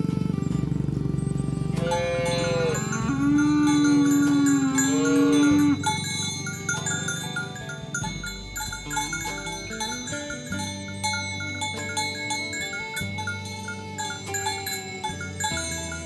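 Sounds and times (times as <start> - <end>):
light chiming music: 0.0 - 16.0
cow mooing: 1.3 - 11.2.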